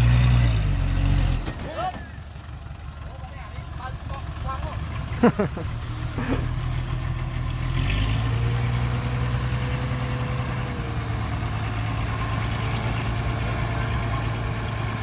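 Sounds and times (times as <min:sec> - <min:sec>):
heavy machine engine idling: 0:01.6 - 0:07.6, 0:10.9 - 0:15.0.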